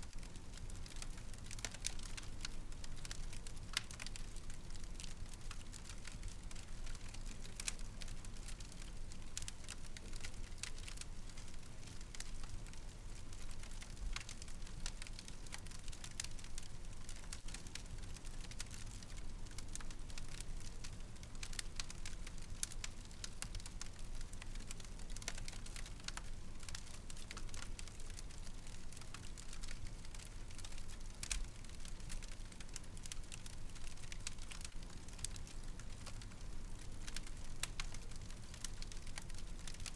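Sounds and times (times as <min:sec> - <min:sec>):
fire crackling and popping: 0:00.1 - 0:39.9.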